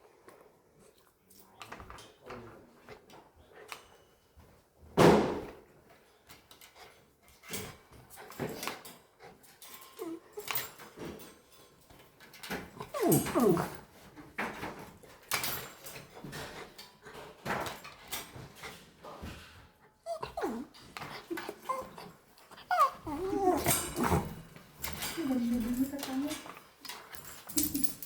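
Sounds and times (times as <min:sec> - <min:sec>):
dog whimpering: 0:09.9 - 0:10.6, 0:12.8 - 0:13.8, 0:20.0 - 0:24.4.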